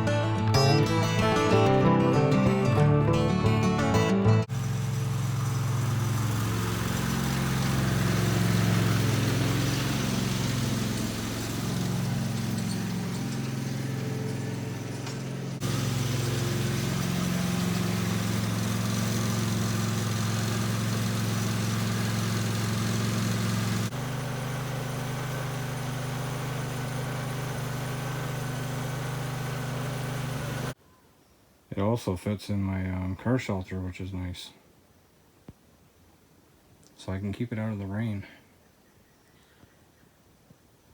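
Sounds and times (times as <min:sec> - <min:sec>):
garden tractor engine running: 0:00.0 - 0:30.8.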